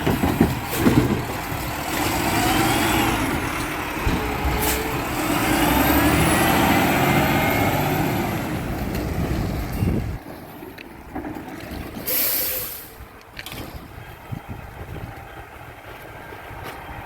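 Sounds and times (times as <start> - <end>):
garbage truck diesel engine: 0.0 - 17.0.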